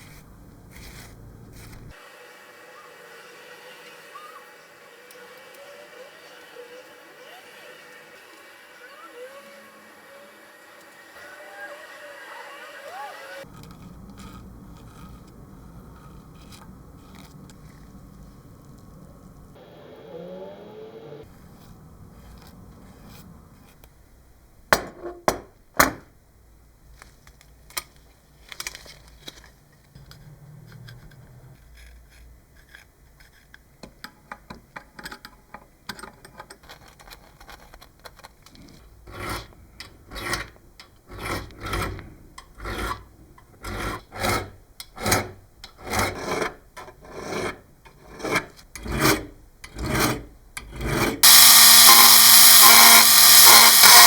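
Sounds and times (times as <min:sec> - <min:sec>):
tool rasping back and forth: 0:00.7 - 0:17.5, 0:51.2 - 0:54.0.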